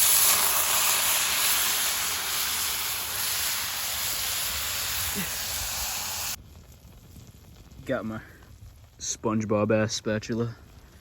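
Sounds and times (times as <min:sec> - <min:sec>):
steak sizzling in a skillet: 0:00.0 - 0:06.4.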